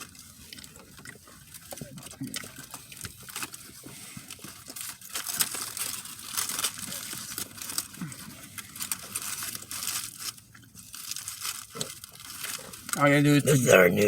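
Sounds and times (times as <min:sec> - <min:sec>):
small clicks and crackles: 0:00.0 - 0:13.0
food packaging crinkling: 0:04.3 - 0:14.0.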